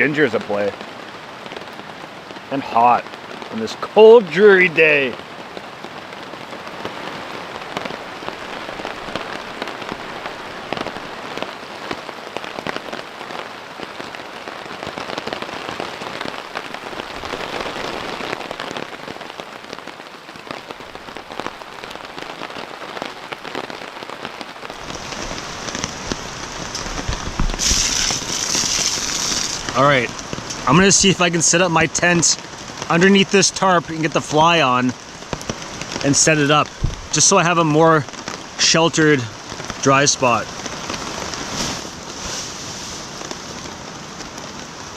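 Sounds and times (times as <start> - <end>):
rain pattering on a tarp: 0.0 - 44.9
loud rustle: 24.7 - 30.6, 40.5 - 43.7
low thump: 36.8 - 37.1.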